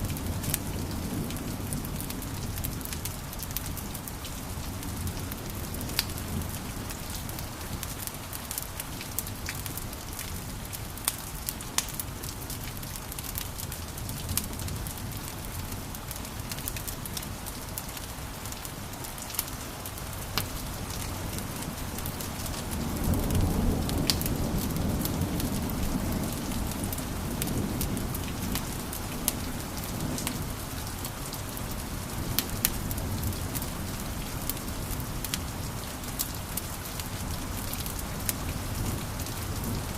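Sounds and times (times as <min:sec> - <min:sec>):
wood fire crackling and popping: 0:00.2 - 0:17.2, 0:17.8 - 0:25.7.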